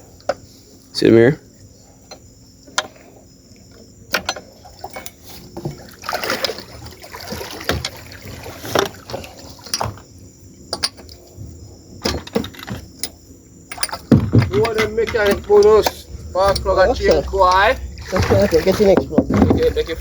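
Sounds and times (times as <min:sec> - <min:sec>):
handling noise: 0:07.7 - 0:20.0
hand tools knocking on metal: 0:12.0 - 0:20.0.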